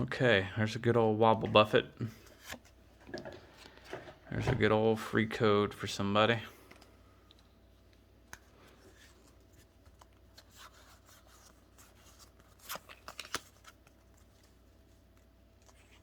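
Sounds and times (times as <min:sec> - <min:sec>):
trading cards rustling and clicking: 0:08.2 - 0:16.0.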